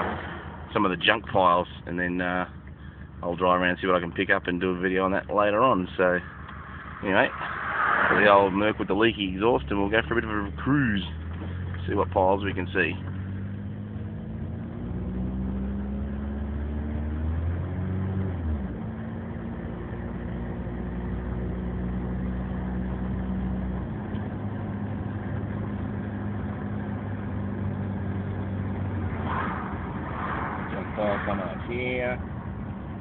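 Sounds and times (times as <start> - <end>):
car engine and leaky exhaust: 0.0 - 14.2.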